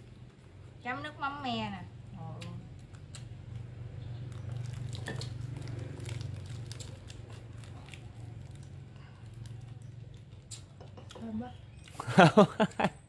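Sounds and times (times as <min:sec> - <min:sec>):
chewing crunches and clicks: 0:02.4 - 0:11.2.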